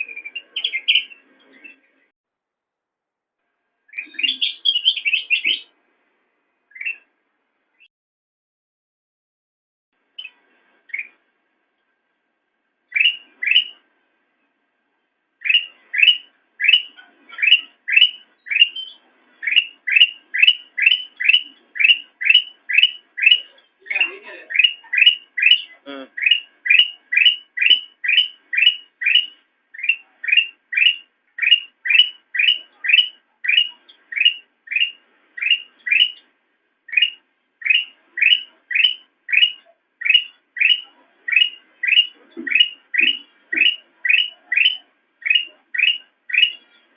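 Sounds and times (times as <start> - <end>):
bulbul whistled calls: 0.0 - 1.8, 3.9 - 5.7, 6.7 - 7.1, 10.2 - 11.2, 12.9 - 13.8, 15.4 - 36.3, 36.9 - 46.9.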